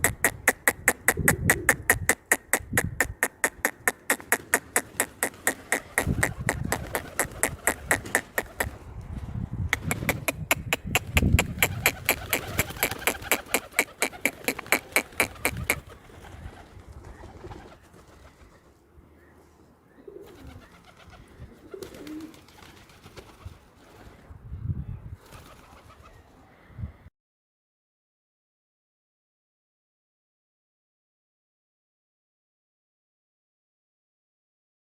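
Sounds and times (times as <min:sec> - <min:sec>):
fast sharp clicks: 0:00.0 - 0:08.8, 0:09.7 - 0:15.9
pigeons cooing: 0:00.0 - 0:08.8, 0:09.8 - 0:18.6, 0:19.9 - 0:23.0.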